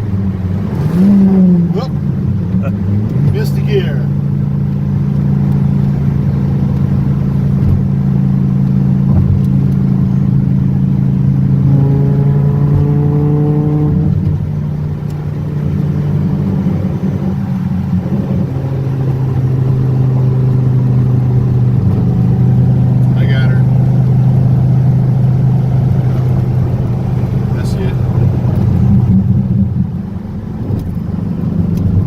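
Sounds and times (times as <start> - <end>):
car engine accelerating: 0.0 - 32.0.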